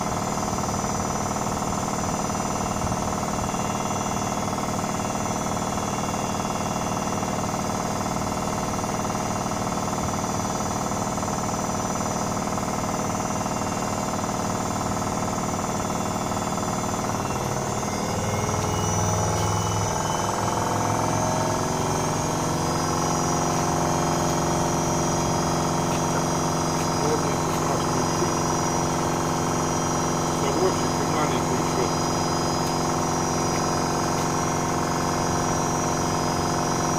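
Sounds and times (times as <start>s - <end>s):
washing machine hum and rattle: 0.0s - 36.9s.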